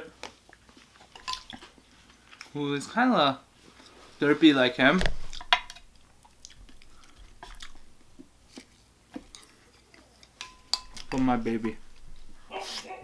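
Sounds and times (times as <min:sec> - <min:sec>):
person chewing food: 0:00.2 - 0:02.6, 0:05.2 - 0:11.1.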